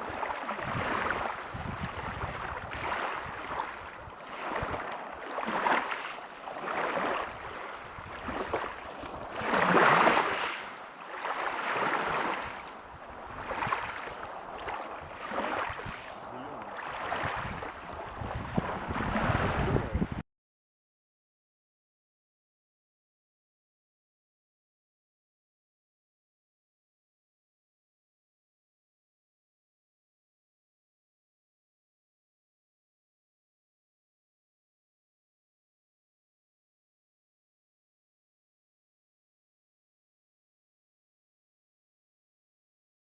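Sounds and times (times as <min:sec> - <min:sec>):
wind rumble on microphone: 0:00.0 - 0:05.3, 0:06.9 - 0:10.6, 0:11.8 - 0:20.2
waves surging: 0:00.0 - 0:20.2.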